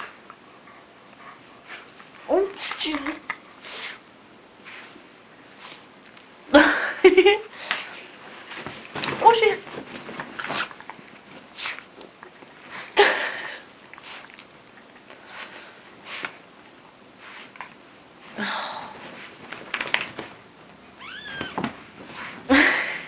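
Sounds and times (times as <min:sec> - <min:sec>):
dogs sniffing and snuffling: 0:07.9 - 0:13.0, 0:13.7 - 0:16.5.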